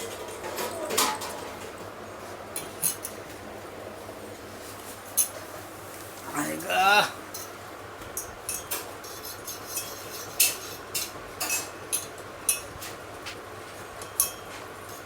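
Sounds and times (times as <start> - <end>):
utensils clinking on dishes: 0.0 - 1.8, 2.6 - 3.2, 5.1 - 5.4, 8.2 - 12.9, 14.0 - 15.0.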